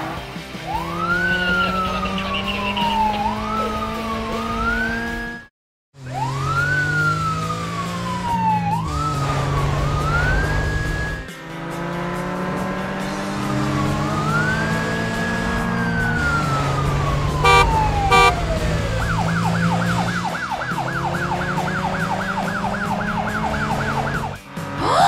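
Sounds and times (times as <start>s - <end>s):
cartoon police siren: 0.7s - 11.3s, 13.5s - 24.4s
car engine running: 0.8s - 5.1s, 6.0s - 24.8s
car horn honks: 17.4s - 18.4s.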